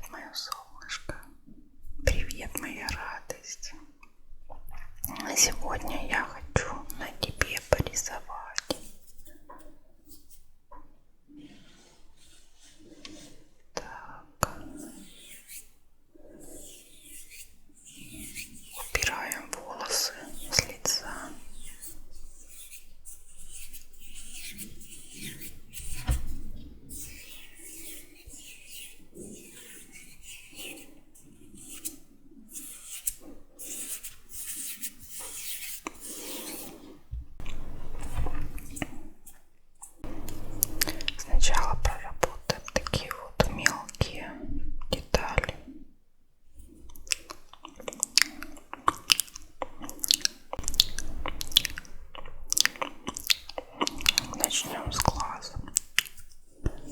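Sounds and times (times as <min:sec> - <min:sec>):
brush bristles stroking: 0:05.6 - 0:10.6, 0:11.3 - 0:43.9, 0:46.6 - 0:56.9
wet breathy mouth sounds: 0:18.0 - 0:22.0, 0:35.8 - 0:39.2, 0:40.0 - 0:45.8, 0:46.6 - 0:56.9
sharp sticky mouth clicks: 0:40.2 - 0:45.6, 0:46.9 - 0:56.9.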